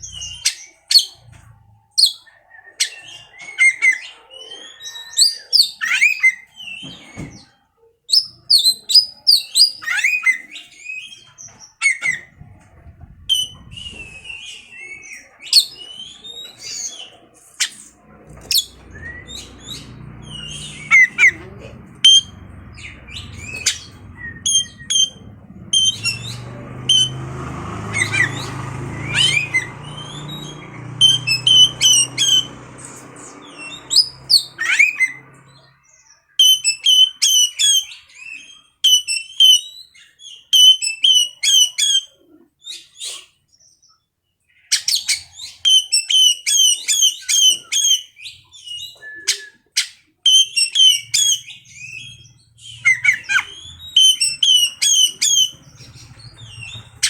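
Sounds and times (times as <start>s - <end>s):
bird whistling song: 0.0s - 1.3s, 1.9s - 7.5s, 8.1s - 12.4s, 13.2s - 57.0s
low hum: 18.0s - 35.8s.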